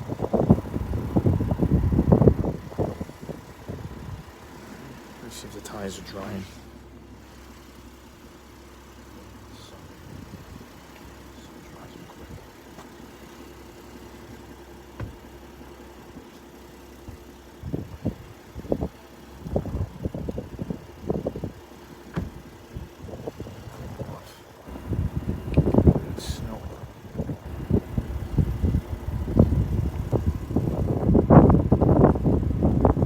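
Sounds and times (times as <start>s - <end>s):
wind buffeting microphone: 0.0s - 4.5s, 17.6s - 21.6s, 22.2s - 33.0s
truck engine idling: 0.0s - 33.0s.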